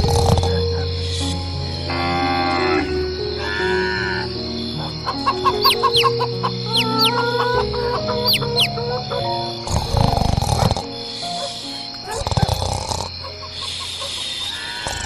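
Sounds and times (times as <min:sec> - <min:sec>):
background music: 0:00.0 - 0:15.0
rooster crowing: 0:04.9 - 0:08.9.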